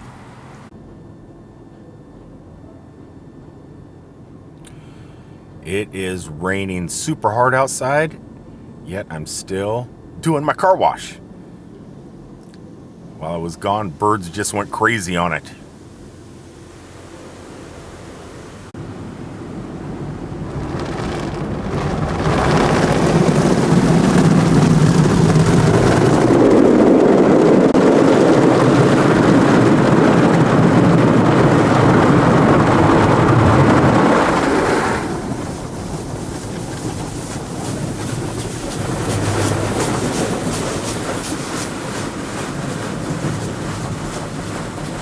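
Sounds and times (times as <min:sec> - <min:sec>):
car wash water spray and machinery: 0:00.0 - 0:01.1, 0:12.6 - 0:45.0
fast even patter: 0:20.4 - 0:45.0.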